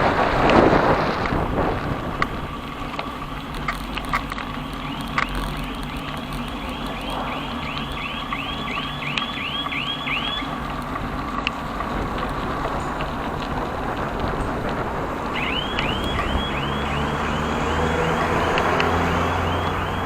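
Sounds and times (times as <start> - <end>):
traffic rumble: 0.0 - 20.0
clicks: 3.0 - 13.5, 15.4 - 20.0
high rising and falling squeak: 15.4 - 20.0.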